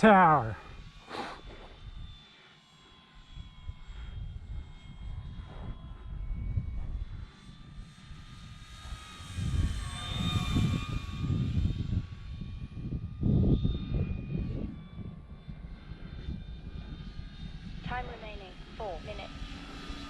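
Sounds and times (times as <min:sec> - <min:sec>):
model plane motor whining: 0:00.0 - 0:20.0
wind buffeting microphone: 0:03.3 - 0:18.7.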